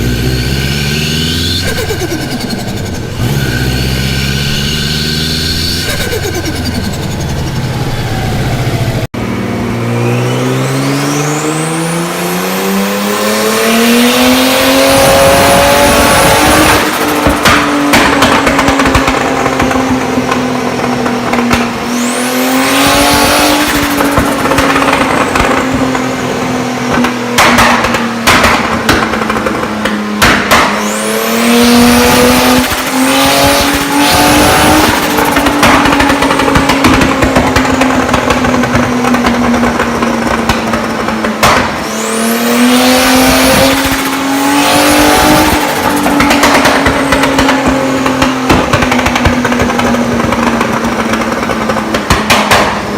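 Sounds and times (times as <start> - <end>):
turbo whistle: 0.0 - 8.8
exhaust cracks: 0.0 - 9.1, 13.2 - 52.9
turbocharged car engine revving: 0.0 - 52.9
turbo flutter: 1.2 - 9.0.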